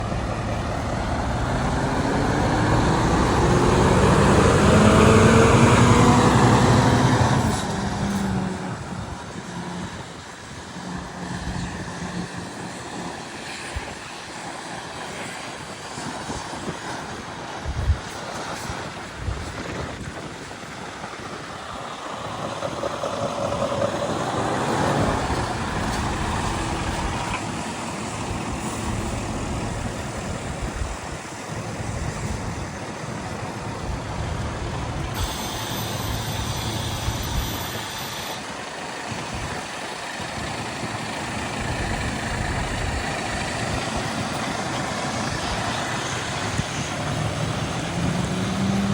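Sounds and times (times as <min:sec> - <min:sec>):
truck engine idling: 0:00.0 - 0:08.5, 0:22.0 - 0:46.3.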